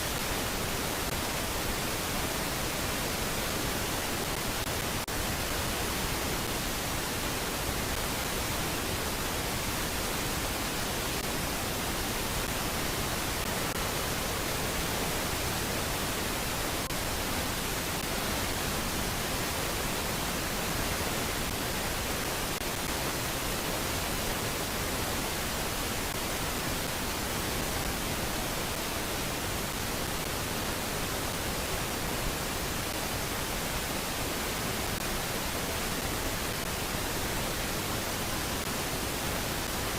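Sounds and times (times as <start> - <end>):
static hiss: 0.0 - 39.9.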